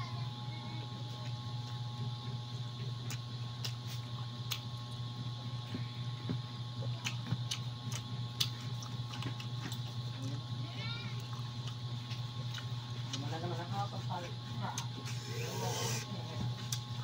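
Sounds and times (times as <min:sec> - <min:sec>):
steady low hum: 0:00.0 - 0:17.0
wet clicks and lip smacks: 0:03.0 - 0:03.8, 0:04.4 - 0:04.7, 0:07.0 - 0:09.8, 0:11.3 - 0:13.2
person chewing food: 0:03.0 - 0:04.8, 0:06.9 - 0:10.1, 0:11.2 - 0:13.3.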